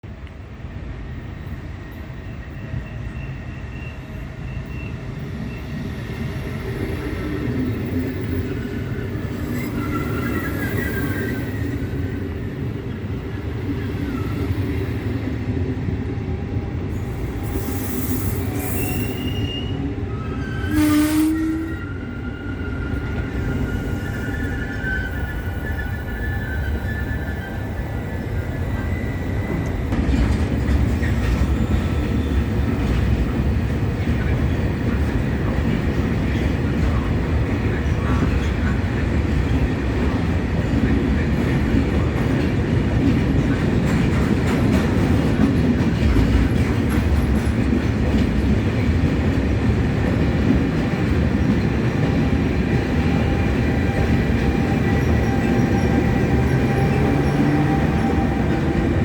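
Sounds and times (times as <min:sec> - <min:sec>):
train wheels rumbling on rail: 0:00.0 - 0:59.0
wheels clickety-clack: 0:29.4 - 0:59.0.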